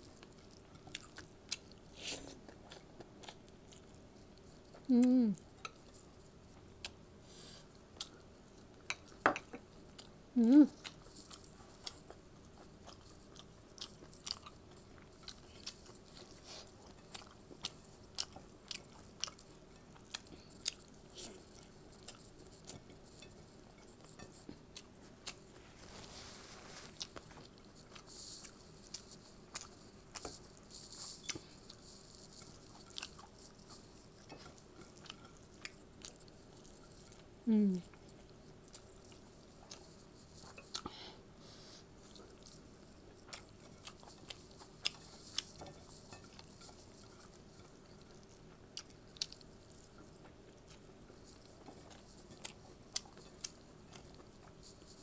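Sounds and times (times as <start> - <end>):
person humming briefly: 4.9 - 5.4, 10.4 - 10.8, 37.5 - 37.8
person chewing with wet mouth clicks: 42.1 - 54.6.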